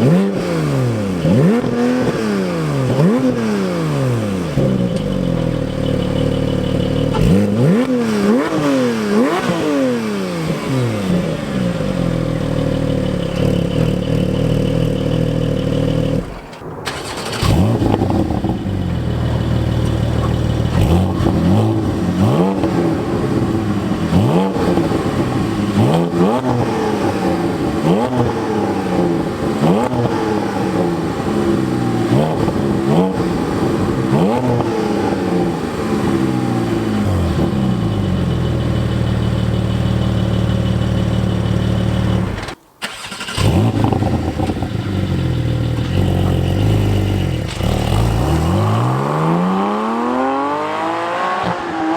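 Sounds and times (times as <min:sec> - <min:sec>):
engine throttle blips: 0:00.0 - 0:51.9
engine idling: 0:04.5 - 0:07.8, 0:11.0 - 0:25.8, 0:36.5 - 0:48.0.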